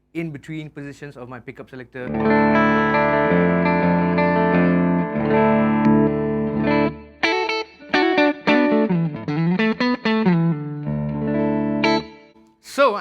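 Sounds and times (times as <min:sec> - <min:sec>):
clean electric guitar chords: 0:02.1 - 0:12.4.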